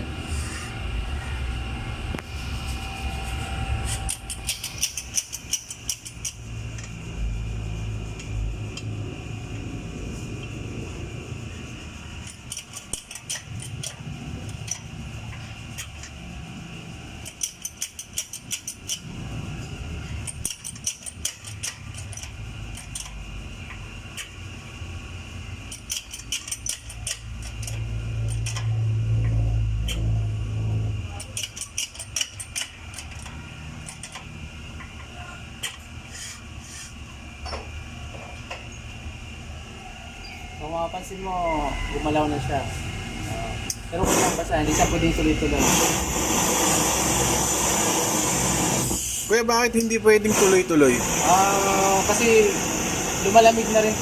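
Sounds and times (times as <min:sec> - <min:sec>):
press low steady hum: 0:00.0 - 0:54.0
rapid metallic clicks: 0:04.1 - 0:09.0, 0:12.1 - 0:16.4, 0:17.1 - 0:19.4, 0:20.1 - 0:24.4, 0:25.6 - 0:30.1, 0:31.1 - 0:35.0.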